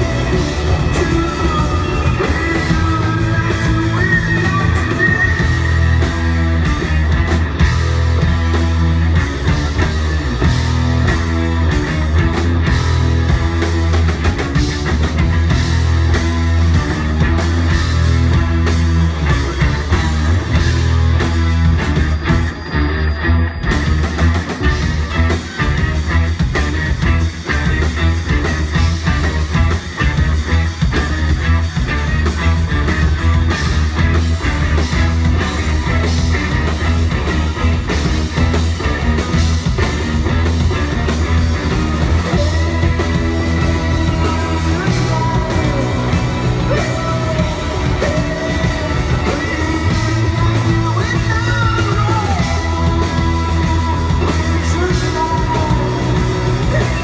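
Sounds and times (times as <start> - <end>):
person singing: 0.0 - 6.2, 42.2 - 57.0
heavy bass line: 0.0 - 57.0
live rock band playing: 0.0 - 57.0.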